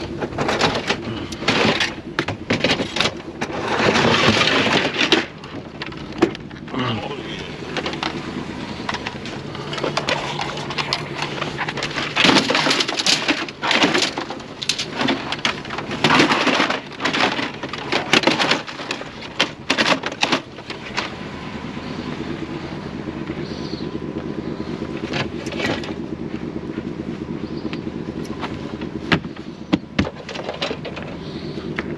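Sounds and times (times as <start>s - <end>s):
loud irregular clatters and bangs: 0.0s - 6.4s, 8.9s - 21.2s
engine running: 0.0s - 31.9s.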